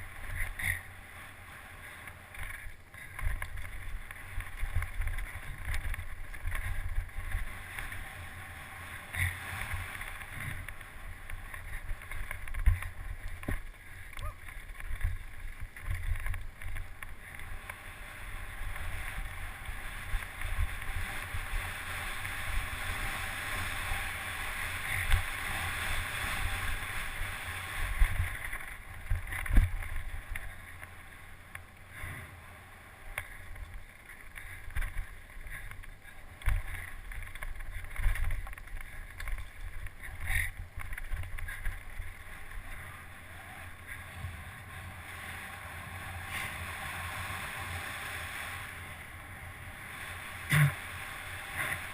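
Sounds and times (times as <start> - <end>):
bike rumbling over rough ground: 0.0 - 51.9.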